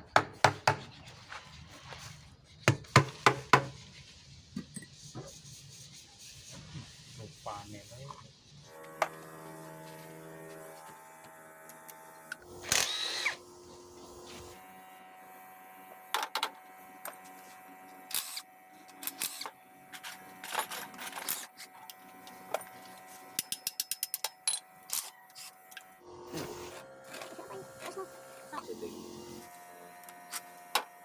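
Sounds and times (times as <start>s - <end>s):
power tool whirring: 8.7s - 23.4s, 24.8s - 31.0s.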